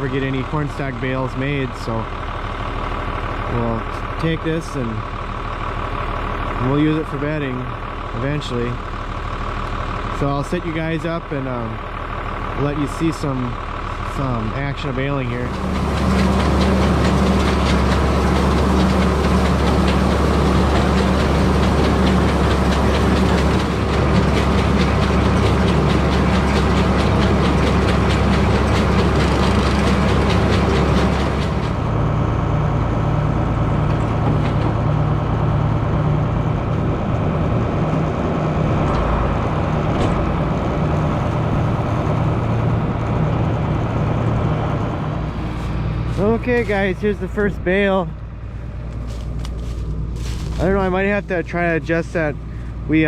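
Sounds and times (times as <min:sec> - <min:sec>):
tractor engine running: 0:00.0 - 0:53.0
baler mechanical clatter: 0:12.7 - 0:38.2.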